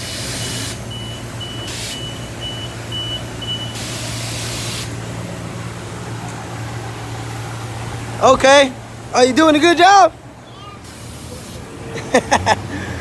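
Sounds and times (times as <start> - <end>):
pressure washer spraying: 0.0 - 0.9, 1.6 - 2.2, 3.6 - 5.0, 10.8 - 11.7.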